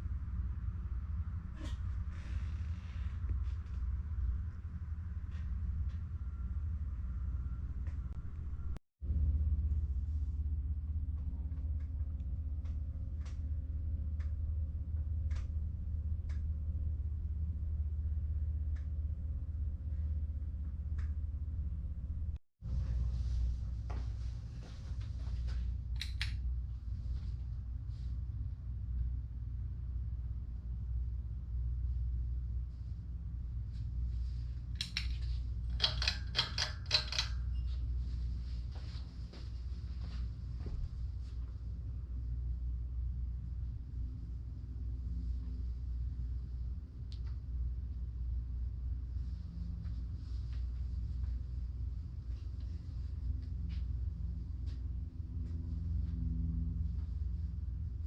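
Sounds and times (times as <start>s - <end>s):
ceiling fan motor hum: 0.0s - 58.0s
ceiling fan light ticks: 11.1s - 21.8s, 25.8s - 26.6s, 34.8s - 37.8s, 47.0s - 47.7s.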